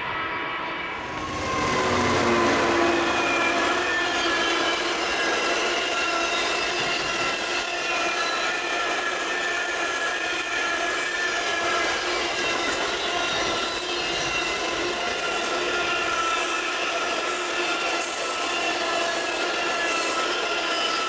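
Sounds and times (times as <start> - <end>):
train engine droning: 0.1 - 8.2
train wheels rumbling: 0.8 - 7.6.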